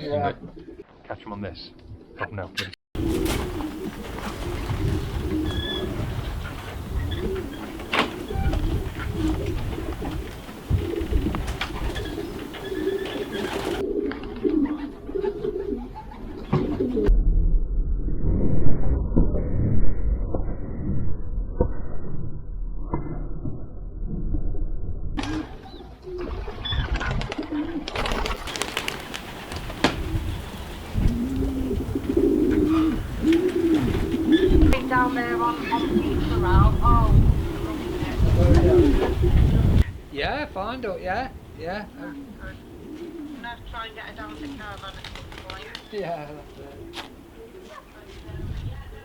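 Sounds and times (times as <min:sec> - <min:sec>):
pigeons cooing: 0:00.0 - 0:00.9, 0:03.0 - 0:17.1, 0:25.2 - 0:39.9, 0:41.4 - 0:49.0
rustles: 0:03.0 - 0:15.2, 0:28.0 - 0:39.9, 0:42.1 - 0:49.0.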